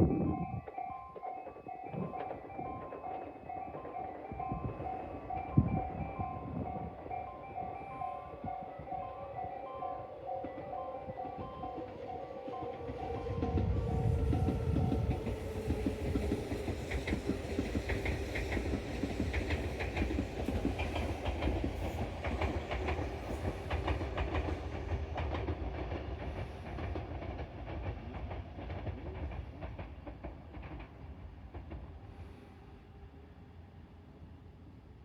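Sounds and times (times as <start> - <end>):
electric train running: 0.0 - 32.2
wheels clacking over rail joints: 10.1 - 32.0.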